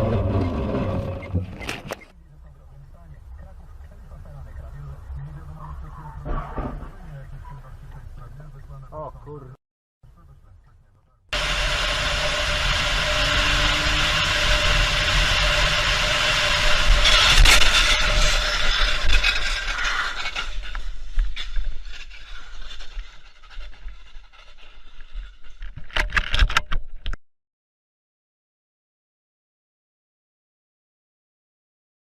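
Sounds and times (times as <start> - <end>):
car driving noise: 10.1 - 20.8.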